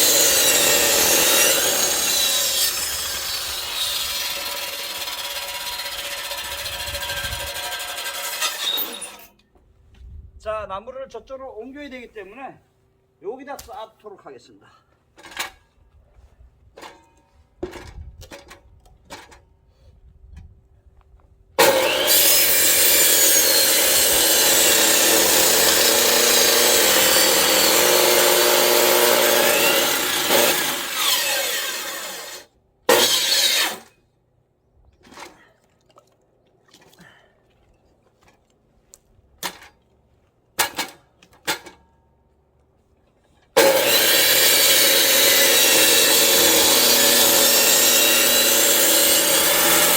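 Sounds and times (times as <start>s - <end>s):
electric saw cutting logs: 0.0s - 9.3s, 21.6s - 33.9s, 43.6s - 49.9s.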